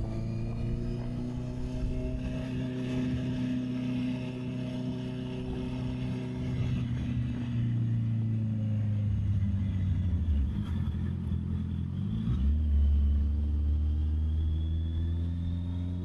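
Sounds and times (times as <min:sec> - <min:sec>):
motorcycle engine running: 0:00.0 - 0:08.1.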